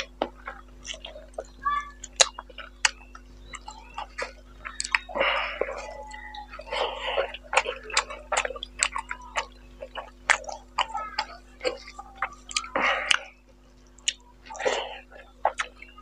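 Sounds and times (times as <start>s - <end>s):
food squelches: 0.0s - 16.0s
wet chewing and lip smacking: 0.0s - 16.0s.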